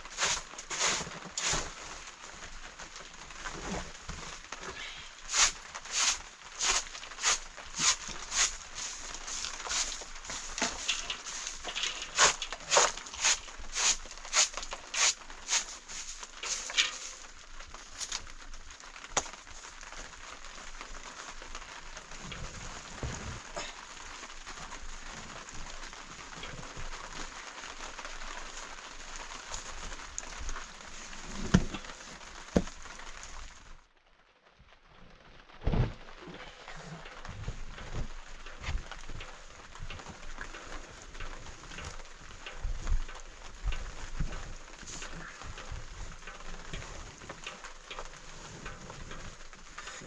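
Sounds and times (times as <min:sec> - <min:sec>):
crunching footsteps: 0:00.0 - 0:04.6, 0:05.2 - 0:18.4
steady hiss: 0:00.0 - 0:33.8, 0:36.2 - 0:50.0.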